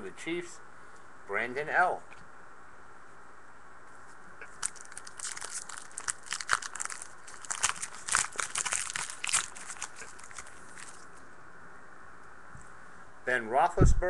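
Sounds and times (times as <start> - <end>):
card pack wrapper crinkling: 4.4 - 11.1.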